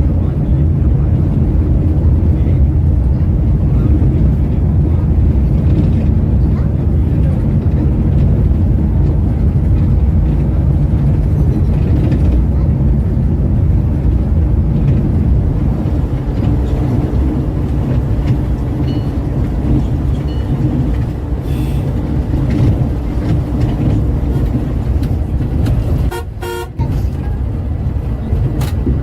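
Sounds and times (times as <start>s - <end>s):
coach engine and tyres rumbling: 0.0s - 29.0s
vehicle horn: 26.1s - 26.9s.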